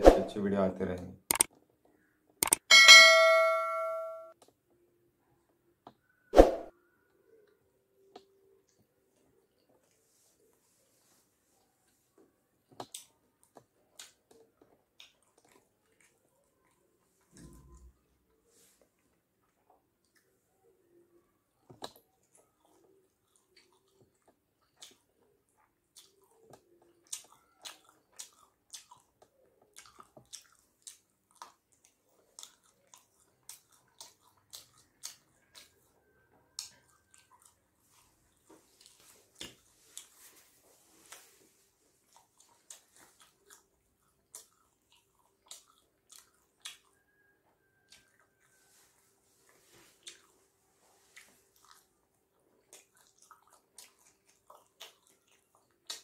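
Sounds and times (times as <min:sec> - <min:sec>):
mouth clicks and smacks: 0:01.3 - 0:01.6, 0:02.4 - 0:02.7, 0:23.3 - 0:35.8, 0:42.0 - 0:47.0, 0:52.5 - 0:56.0
person chewing and biting: 0:25.9 - 0:35.8, 0:42.0 - 0:47.0, 0:51.2 - 0:56.0.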